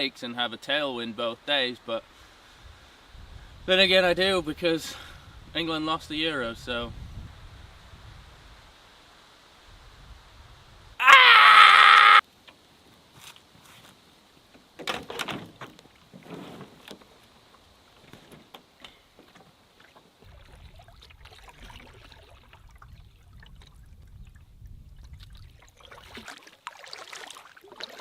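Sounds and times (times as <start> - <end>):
paddle splashing in water: 18.0 - 24.0, 25.0 - 28.0.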